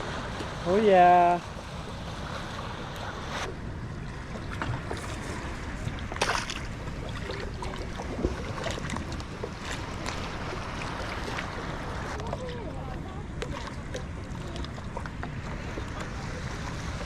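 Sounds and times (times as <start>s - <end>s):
water splashes: 0.0s - 17.0s
wind and water rumble: 0.0s - 17.0s.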